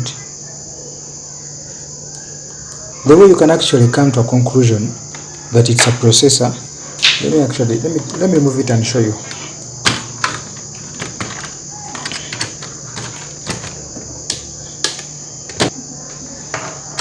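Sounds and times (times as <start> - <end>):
high-pitched hiss: 0.0 - 10.8
steady low hum: 0.0 - 17.0.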